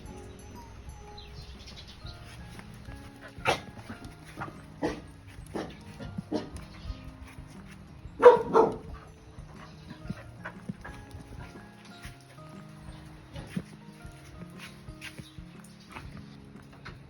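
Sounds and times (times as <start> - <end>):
dog barking: 3.3 - 6.7, 8.2 - 9.1.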